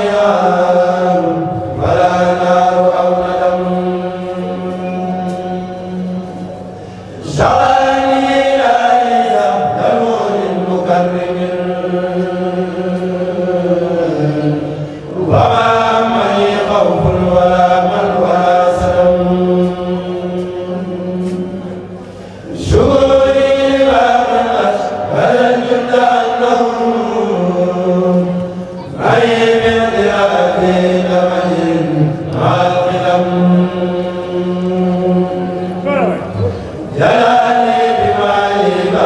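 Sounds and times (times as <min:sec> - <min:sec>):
group of voices chanting: 0:22.7 - 0:39.0.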